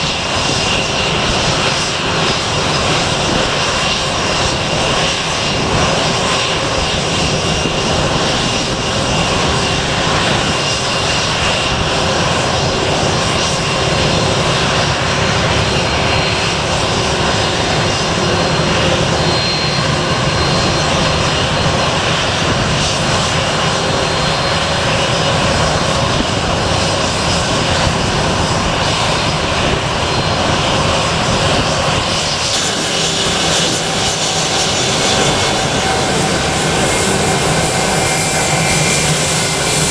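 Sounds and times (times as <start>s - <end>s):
airliner engines at high power: 0.0s - 39.9s
faint whining tones: 32.5s - 39.9s.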